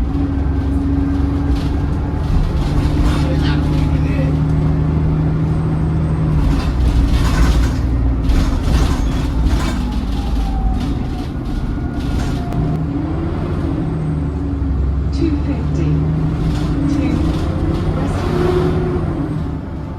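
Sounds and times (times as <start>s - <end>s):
bus engine humming: 0.0s - 19.9s
road noise: 0.0s - 19.9s
rattling: 1.1s - 4.8s, 6.3s - 12.8s.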